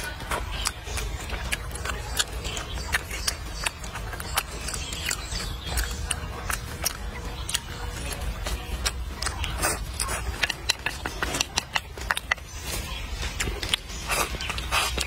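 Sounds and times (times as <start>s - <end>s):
wet mouth clicks and smacks: 0.0s - 8.2s
person chewing food: 0.0s - 15.0s.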